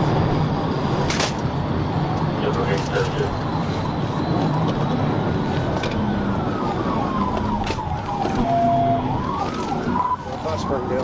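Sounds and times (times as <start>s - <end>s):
engine and road noise: 0.0s - 11.0s
police siren wailing: 2.4s - 11.0s.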